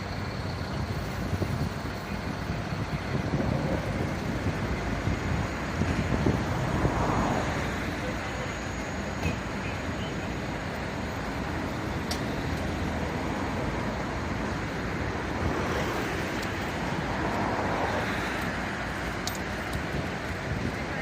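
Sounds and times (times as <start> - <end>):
road traffic noise: 0.0 - 21.0
wind on microphone: 0.8 - 7.6.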